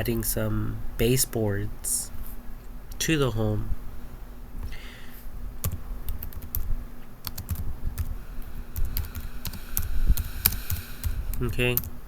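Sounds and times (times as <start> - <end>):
faint low hum: 0.0 - 12.0
keyboard typing clicks: 5.6 - 8.1, 8.8 - 11.9.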